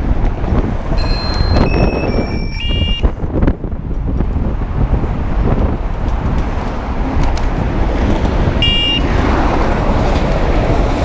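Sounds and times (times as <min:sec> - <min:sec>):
traffic and wind rumble: 0:00.0 - 0:11.0
high-pitched beep: 0:01.0 - 0:03.0, 0:08.6 - 0:09.0.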